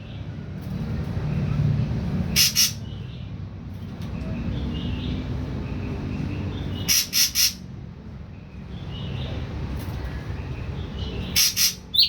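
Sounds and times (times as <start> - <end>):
bird harsh rasping calls: 2.3 - 3.0, 6.7 - 7.7, 11.0 - 12.0.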